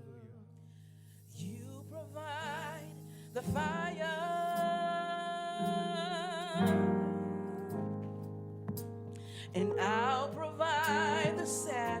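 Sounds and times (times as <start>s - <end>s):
person singing with vibrato: 1.4s - 8.1s, 9.3s - 12.0s.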